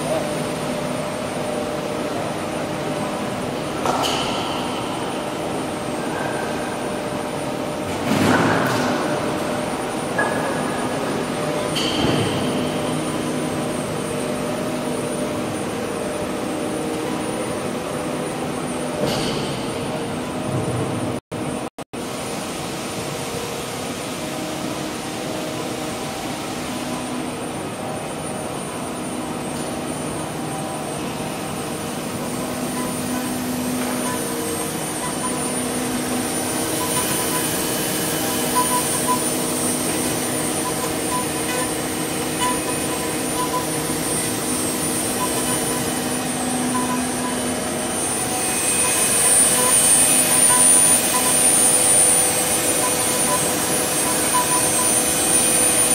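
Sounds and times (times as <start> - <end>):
router spindle whining while cutting: 32.2 - 55.9.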